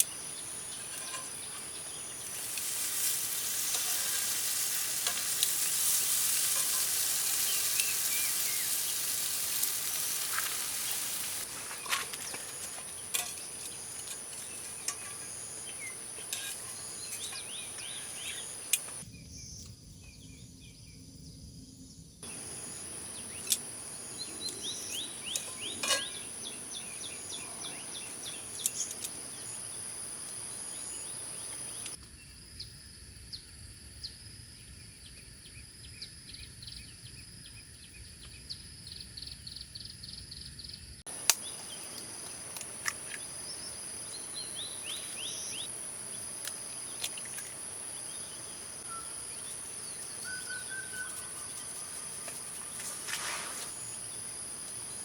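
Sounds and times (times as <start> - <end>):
birds chirping: 0.0 - 19.0, 22.2 - 29.8, 42.7 - 52.9.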